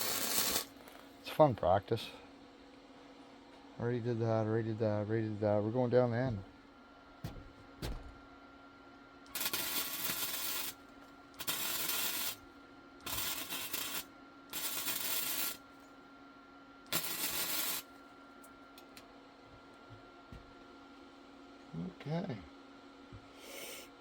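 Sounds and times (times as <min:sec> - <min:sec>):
welder crackling sizzle: 0:00.0 - 0:01.4, 0:09.3 - 0:15.7, 0:16.9 - 0:18.0
constant low hum: 0:00.0 - 0:24.0.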